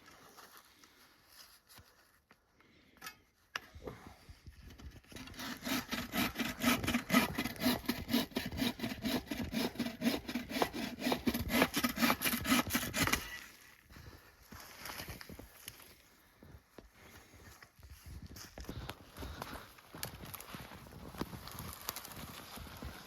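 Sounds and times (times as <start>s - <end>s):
hand saw cutting wood: 5.0s - 13.5s.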